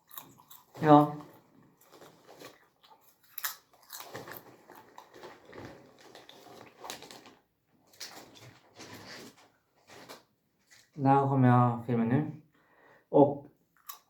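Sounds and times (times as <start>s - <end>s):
person chewing crunchy food: 0.0s - 8.7s, 13.8s - 14.0s.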